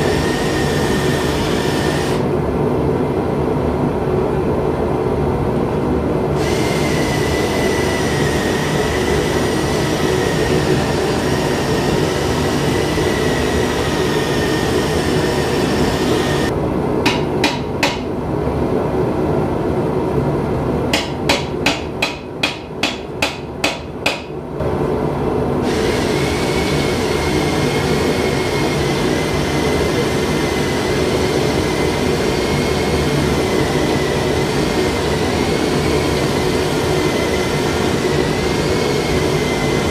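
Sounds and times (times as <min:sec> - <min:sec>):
loud mechanical roar: 0:00.0 - 0:02.9, 0:06.0 - 0:16.7, 0:24.6 - 0:39.9
hammer striking hot steel: 0:17.0 - 0:18.1, 0:20.9 - 0:24.4.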